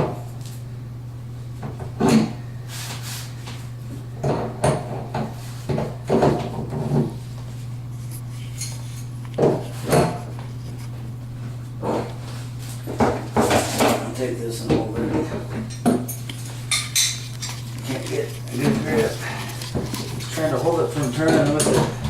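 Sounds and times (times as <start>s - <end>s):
steady low hum: 0.0s - 22.0s
tools and fittings clattering: 15.1s - 22.0s.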